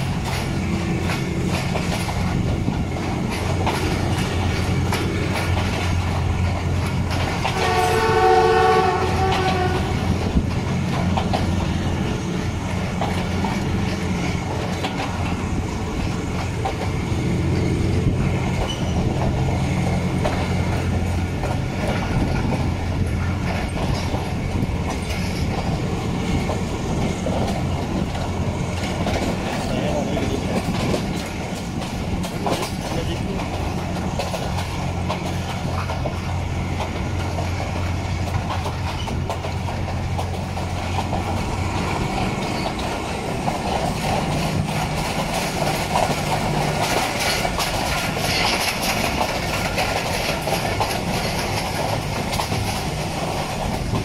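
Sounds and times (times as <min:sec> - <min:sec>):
train wheels clacking over rail joints: 0:00.0 - 0:54.0
locomotive horn: 0:07.3 - 0:10.4.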